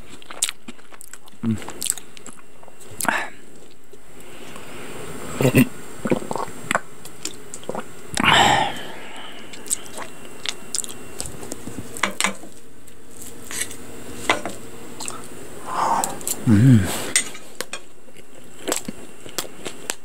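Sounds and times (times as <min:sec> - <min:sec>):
chewing crisp bread: 0:00.0 - 0:04.7, 0:06.0 - 0:08.3, 0:09.4 - 0:13.8, 0:15.0 - 0:15.4, 0:16.0 - 0:20.0.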